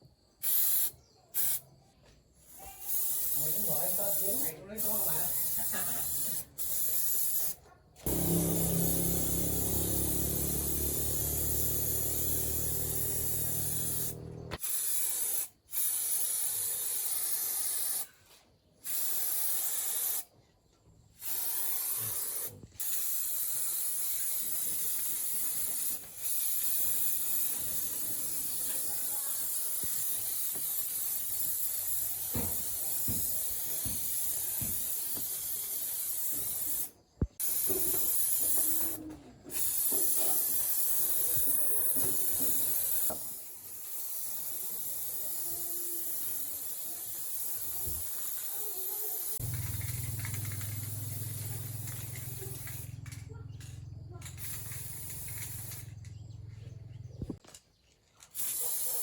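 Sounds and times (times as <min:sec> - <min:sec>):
steady hissing noise: 0:02.7 - 0:07.5.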